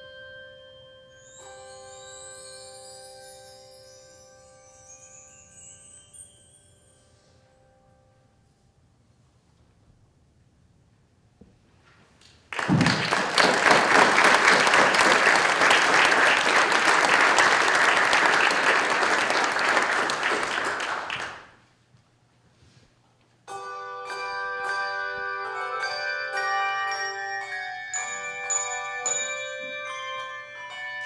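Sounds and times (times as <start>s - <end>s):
bell-like tuned notes: 0.0s - 8.3s, 23.5s - 31.0s
audience applauding: 12.5s - 21.6s.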